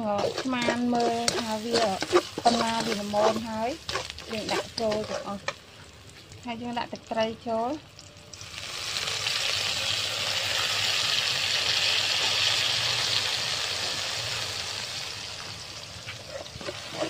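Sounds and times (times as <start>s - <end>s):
spatula stirring in pan: 0.0s - 6.1s, 16.0s - 17.0s
sauce sizzling in hot oil: 0.0s - 17.0s.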